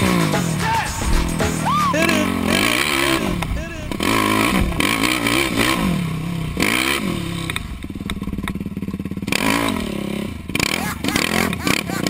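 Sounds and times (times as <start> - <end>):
quad engine revving: 0.0 - 12.0
clatter: 2.6 - 10.7.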